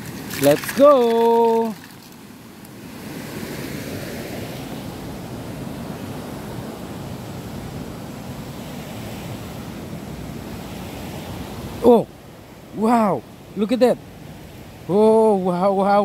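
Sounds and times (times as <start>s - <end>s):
water rushing in concrete channel: 0.0s - 5.1s.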